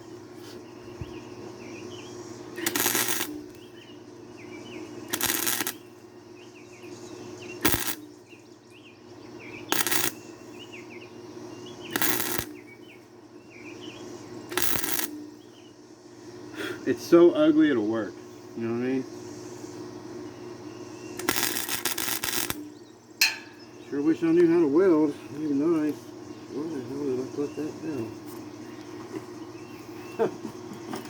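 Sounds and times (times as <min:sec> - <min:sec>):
steady hum: 0:00.0 - 0:31.0
welder striking short welds: 0:02.6 - 0:03.6, 0:05.1 - 0:05.9, 0:07.6 - 0:08.1, 0:09.7 - 0:10.2, 0:11.9 - 0:12.6, 0:14.5 - 0:15.3, 0:21.1 - 0:23.8.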